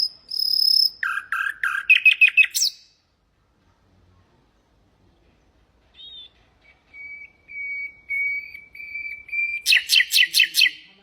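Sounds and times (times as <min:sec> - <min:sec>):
nightingale singing: 0:00.0 - 0:03.0, 0:05.9 - 0:11.0.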